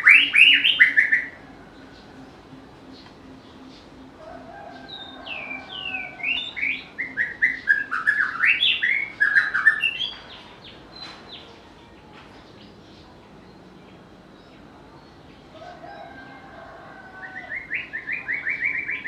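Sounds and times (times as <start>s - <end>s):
bird singing whistled notes: 0.0s - 10.3s.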